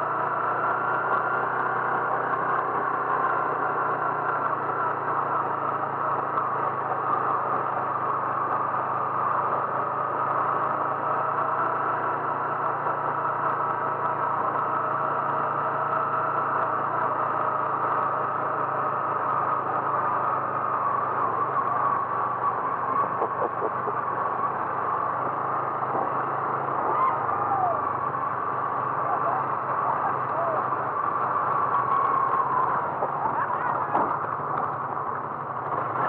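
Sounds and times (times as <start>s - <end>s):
vehicle engine running: 0.0s - 36.0s.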